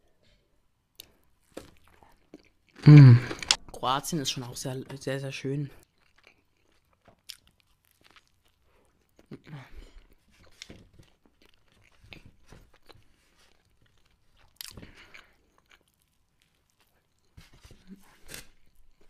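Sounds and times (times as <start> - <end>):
chewing crunch: 1.0 - 3.7, 5.8 - 19.0
wet chewing clicks and smacks: 5.8 - 17.4.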